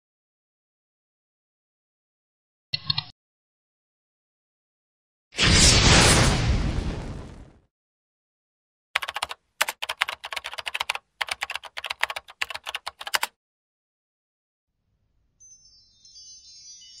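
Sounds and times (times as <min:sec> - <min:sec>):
keyboard typing clicks: 0:09.0 - 0:13.3
faint high shimmering chime: 0:15.2 - 0:17.0.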